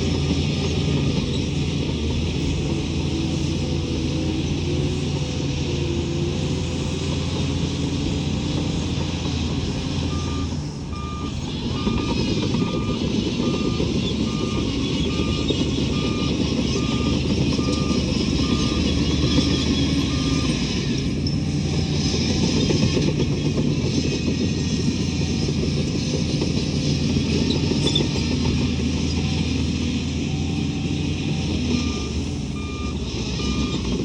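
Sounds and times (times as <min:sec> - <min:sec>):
diesel engine under load: 0:00.0 - 0:34.0
reversing alarm beeping: 0:10.1 - 0:22.7, 0:30.1 - 0:34.0.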